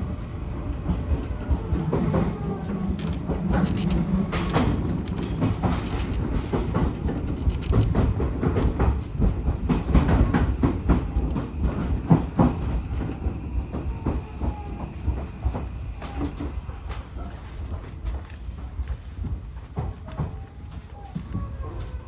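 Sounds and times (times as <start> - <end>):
train rumbling on rails: 0.0 - 22.0
wheel clicks over rail joints: 2.9 - 11.5.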